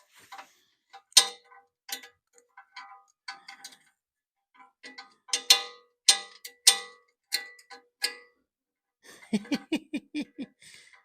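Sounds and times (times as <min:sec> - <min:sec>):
hand tools clinking on metal: 0:04.6 - 0:08.4.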